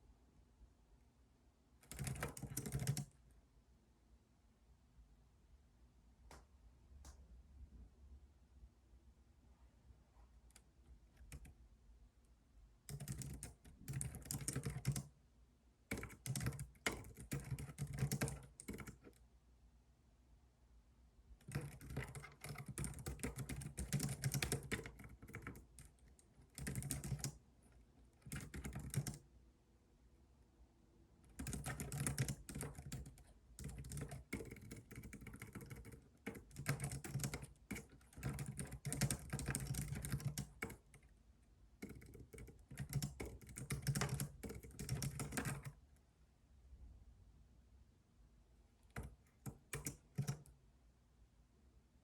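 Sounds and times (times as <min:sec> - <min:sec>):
computer keyboard typing: 0:01.8 - 0:03.2, 0:10.5 - 0:11.6, 0:12.9 - 0:15.1, 0:15.9 - 0:19.2, 0:21.4 - 0:27.4, 0:28.1 - 0:29.2, 0:31.2 - 0:41.1, 0:41.8 - 0:45.8, 0:48.9 - 0:50.6.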